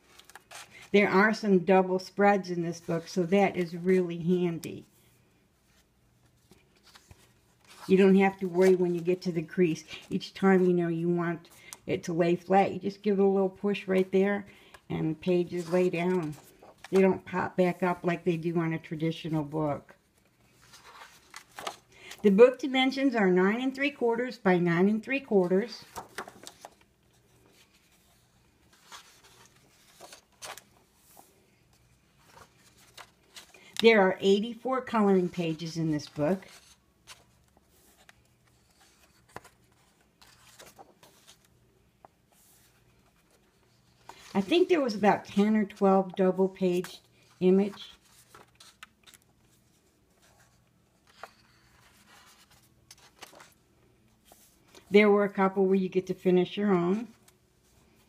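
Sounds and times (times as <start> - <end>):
paper rustling: 0.0 - 1.1, 5.6 - 10.4, 15.2 - 18.2, 19.4 - 22.2, 25.4 - 53.6.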